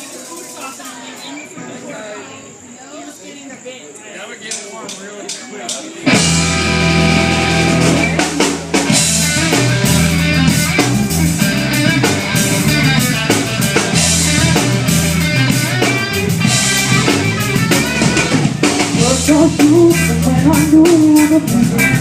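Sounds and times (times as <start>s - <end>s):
live reggae band playing: 4.9s - 22.0s.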